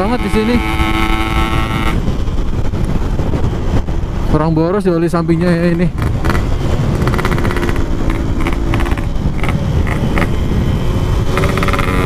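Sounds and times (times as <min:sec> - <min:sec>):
two-stroke motorcycle engine: 0:00.0 - 0:02.2, 0:05.6 - 0:12.0.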